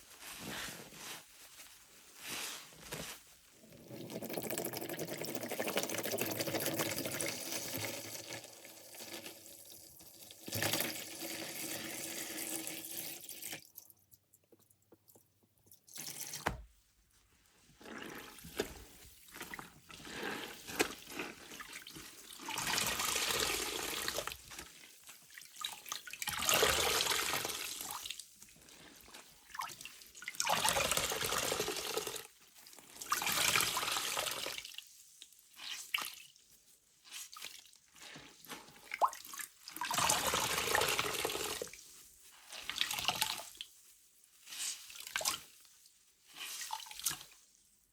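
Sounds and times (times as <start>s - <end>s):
water pouring into a sink: 3.7s - 14.0s, 30.3s - 32.3s, 38.8s - 41.8s
sponge being squeezed: 17.5s - 32.2s, 35.6s - 47.5s.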